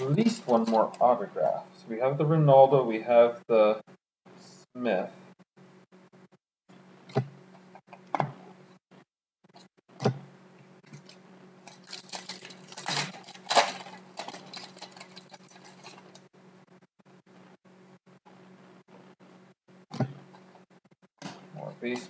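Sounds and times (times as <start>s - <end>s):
wrappers and cards crinkling: 0.0s - 1.2s, 11.0s - 16.3s.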